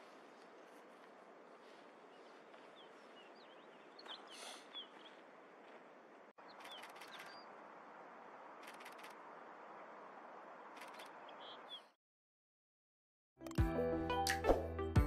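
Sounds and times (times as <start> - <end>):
small bird chirping: 2.0 - 5.3, 6.4 - 7.6, 10.7 - 12.0.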